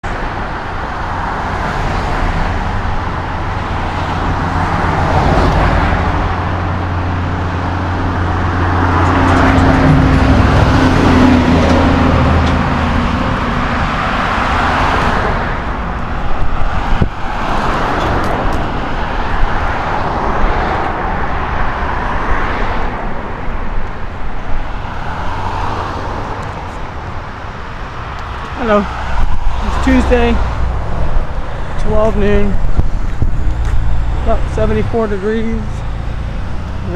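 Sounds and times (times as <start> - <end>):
cars passing: 0.0 - 36.9
low engine rumble: 26.2 - 36.9.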